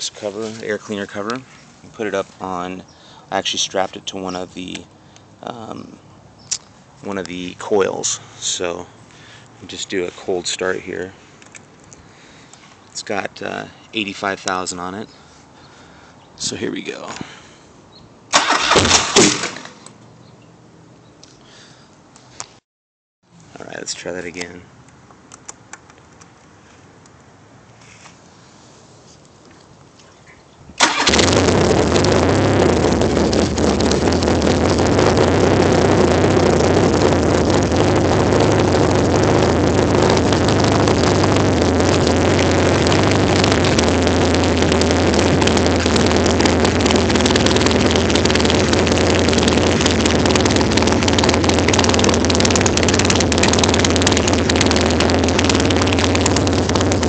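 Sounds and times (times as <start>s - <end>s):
motorcycle engine starting and idling: 18.3s - 20.1s, 30.8s - 57.0s.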